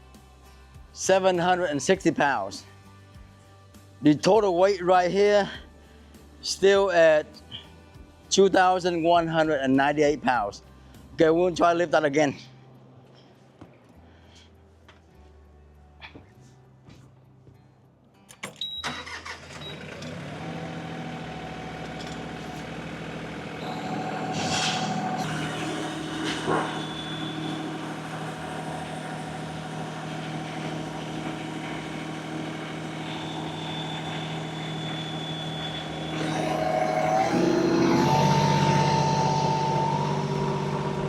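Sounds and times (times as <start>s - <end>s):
tractor diesel engine under load: 18.9s - 41.0s.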